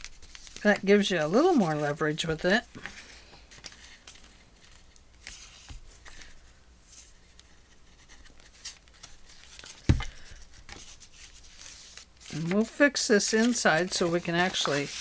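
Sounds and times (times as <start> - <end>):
paper rustling: 0.0 - 15.0
object thumping on table: 9.8 - 10.1.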